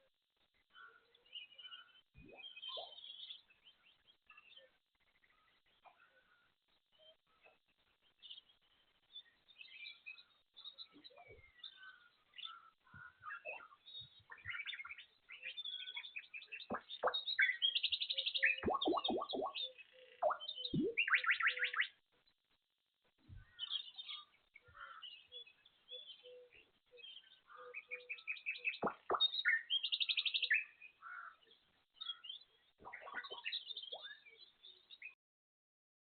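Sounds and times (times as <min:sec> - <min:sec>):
birds chirping and trilling: 0:00.6 - 0:22.0, 0:23.4 - 0:35.2.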